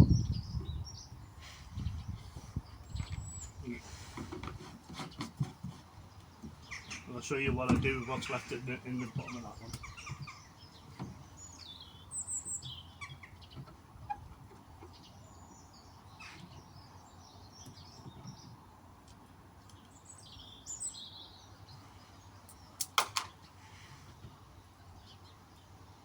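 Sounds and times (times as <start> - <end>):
birds chirping: 0.0 - 26.0
sharp clicks: 22.5 - 23.3.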